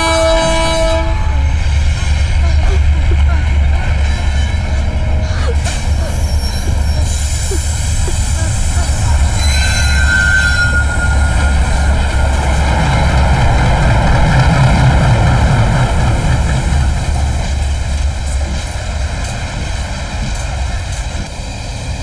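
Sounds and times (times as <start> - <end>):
train deep rumble: 0.0 - 22.0
thin high whine: 4.1 - 13.1.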